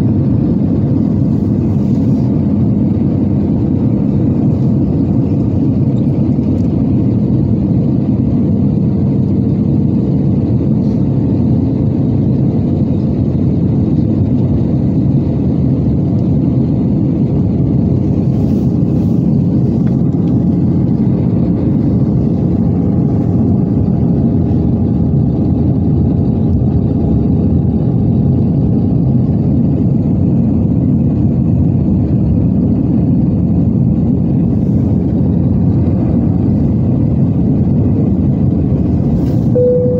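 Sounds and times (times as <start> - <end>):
airplane engines and airflow rumbling: 0.0 - 39.9
faint steady hums: 34.0 - 39.9.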